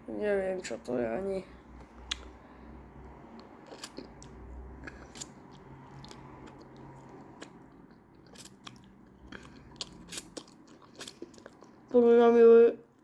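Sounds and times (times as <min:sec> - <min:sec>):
person chewing crunchy food: 0:01.8 - 0:02.4, 0:03.3 - 0:11.9.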